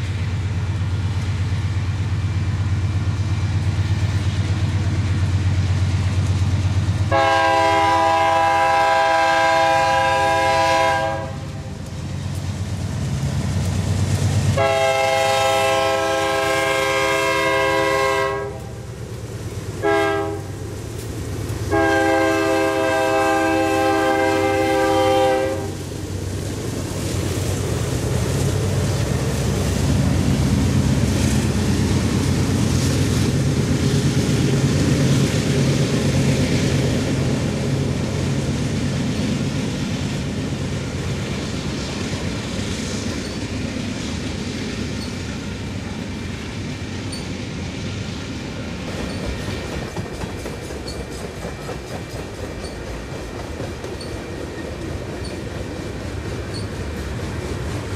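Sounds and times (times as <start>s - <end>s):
locomotive horn: 7.1s - 11.6s, 14.6s - 18.8s, 19.8s - 20.5s, 21.7s - 25.8s
freight cars clickety-clack: 48.5s - 57.9s.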